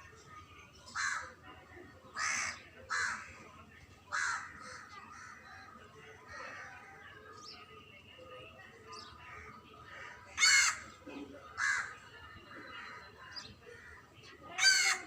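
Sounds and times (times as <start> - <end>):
bird harsh calls: 10.3 - 11.0.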